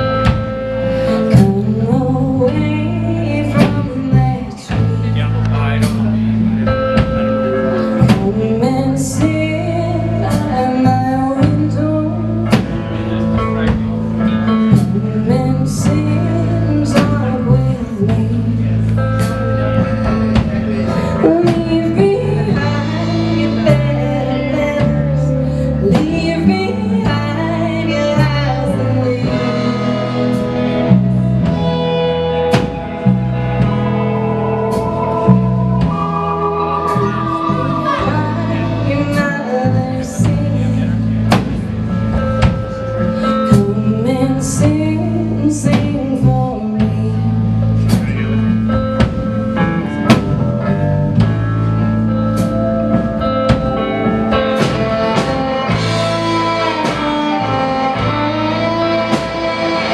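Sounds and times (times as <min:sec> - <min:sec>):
live band playing: 0:00.0 - 0:59.9
person singing: 0:01.0 - 0:13.4, 0:14.3 - 0:30.9, 0:33.6 - 0:41.5
violin: 0:18.6 - 0:46.3, 0:53.0 - 0:59.9.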